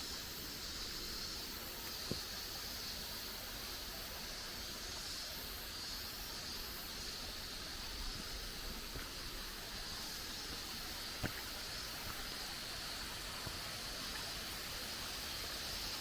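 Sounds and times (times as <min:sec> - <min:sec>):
forest ambience hiss: 0:00.0 - 0:16.0.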